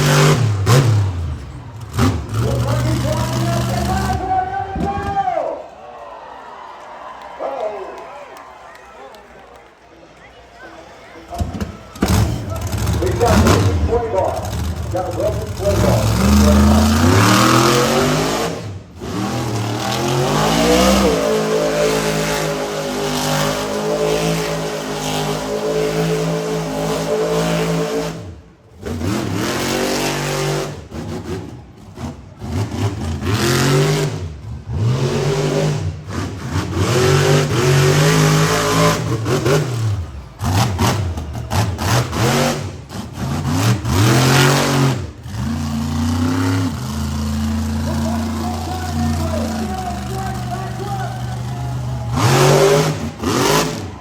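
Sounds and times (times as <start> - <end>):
truck engine revving hard: 0.0 - 5.2, 11.4 - 54.0.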